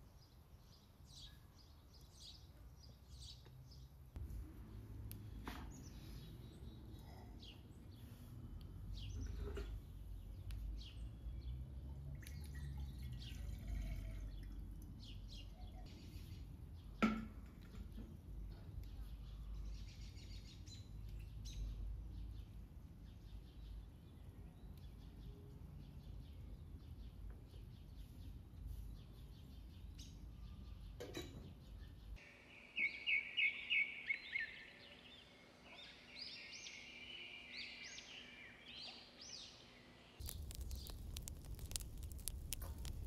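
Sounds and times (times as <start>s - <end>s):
songbirds singing: 4.6s - 17.1s, 17.7s - 43.0s
low outdoor rumble: 40.2s - 43.0s.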